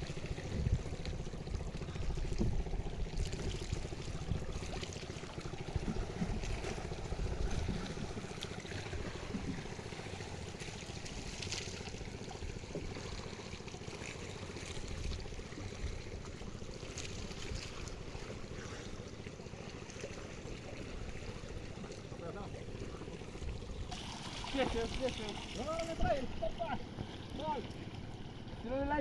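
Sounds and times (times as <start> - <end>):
wind rumble on microphone: 0.0 - 4.8, 5.4 - 9.9
moving sea water: 0.0 - 29.0.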